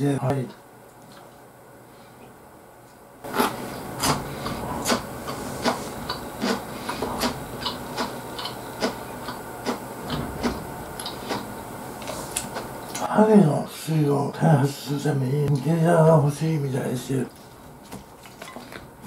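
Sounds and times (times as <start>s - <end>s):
close chewing with wet smacks: 7.2s - 9.8s.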